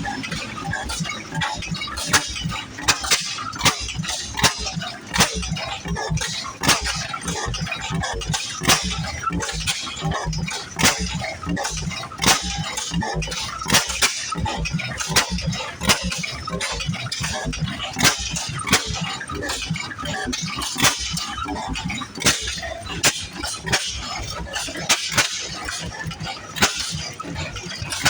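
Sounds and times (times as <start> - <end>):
stationary engine rumbling and clattering: 0.0 - 28.0
sharp metallic clanks: 2.0 - 4.6, 20.7 - 21.4, 22.2 - 25.9.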